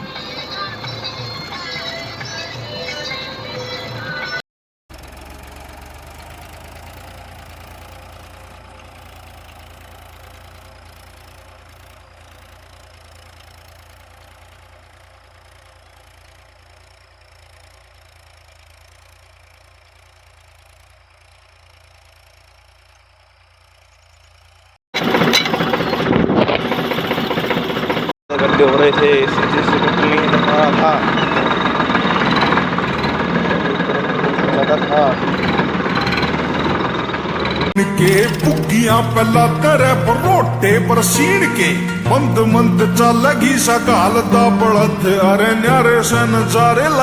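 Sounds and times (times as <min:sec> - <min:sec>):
tractor diesel engine running: 0:00.0 - 0:47.0
loud noise: 0:25.0 - 0:47.0.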